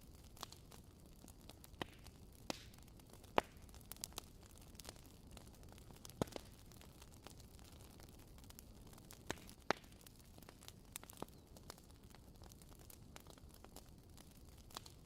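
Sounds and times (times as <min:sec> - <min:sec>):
wood fire crackling: 0:00.0 - 0:15.0
sharp pops of fire: 0:01.6 - 0:07.4, 0:09.0 - 0:15.0.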